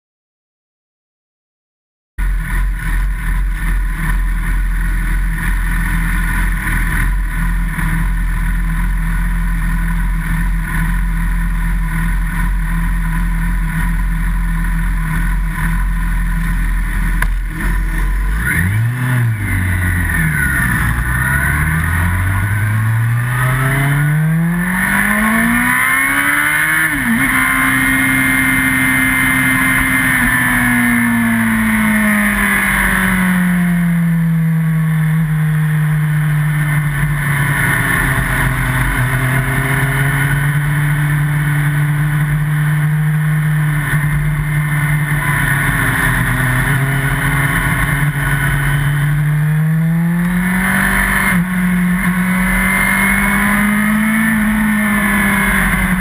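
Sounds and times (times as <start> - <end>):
motorcycle engine idling and revving: 2.2 - 56.0.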